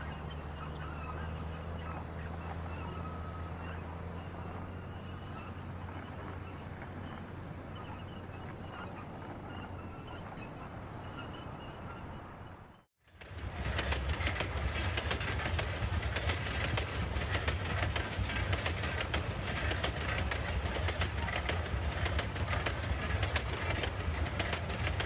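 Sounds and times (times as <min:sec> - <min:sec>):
diesel locomotive rumble: 0:00.0 - 0:09.9, 0:13.1 - 0:25.0
wagon wheels clattering over joints: 0:13.2 - 0:25.0.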